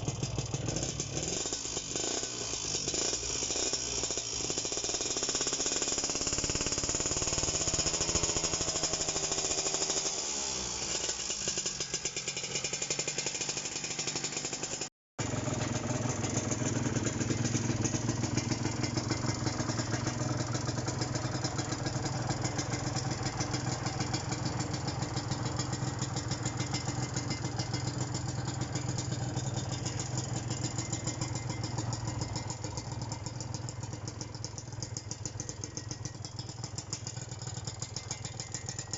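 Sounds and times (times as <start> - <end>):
two-stroke motorcycle engine: 0.0 - 38.9.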